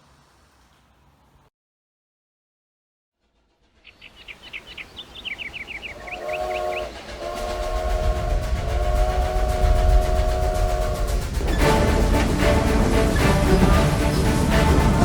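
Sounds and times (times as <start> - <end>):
steam train chugging: 3.3 - 15.0
chord-toned train whistle: 5.9 - 15.0.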